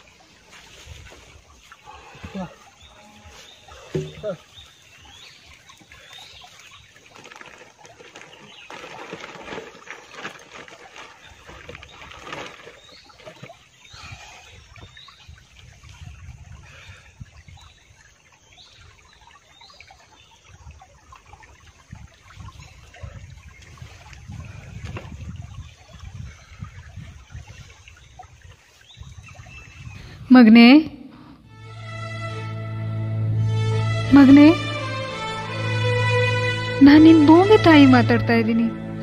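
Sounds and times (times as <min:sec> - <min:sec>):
rustling: 0:07.1 - 0:13.4.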